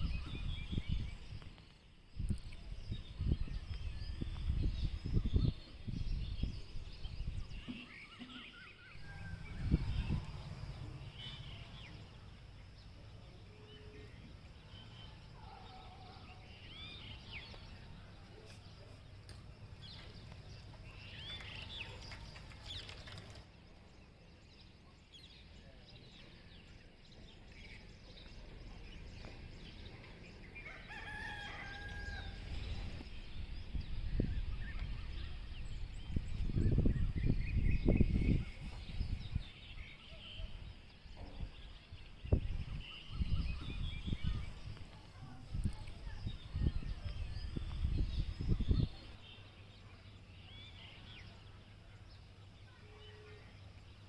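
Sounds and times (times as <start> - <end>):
bird calls: 7.3 - 12.4
rooster crowing: 30.7 - 32.5.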